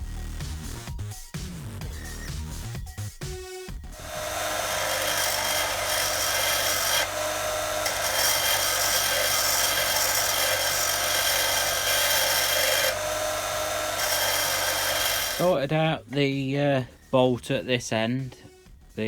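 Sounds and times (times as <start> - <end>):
power grinder grinding steel bolt: 4.0 - 15.6.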